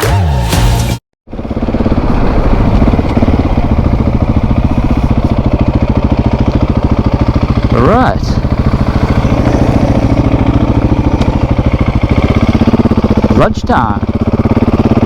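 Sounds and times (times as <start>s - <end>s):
background music: 0.0s - 1.0s
motorcycle engine running steadily: 1.3s - 15.0s.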